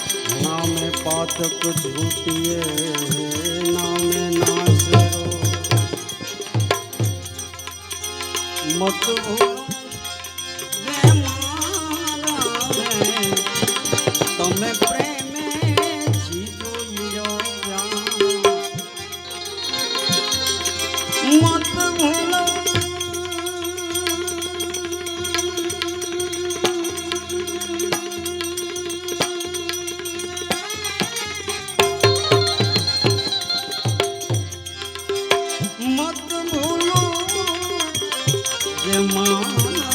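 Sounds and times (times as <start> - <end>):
man singing: 0.0 - 7.2, 8.3 - 31.2, 31.8 - 39.9
hand drums: 0.0 - 39.9
jingling percussion: 0.0 - 39.9
long held melodic note: 32.0 - 35.2.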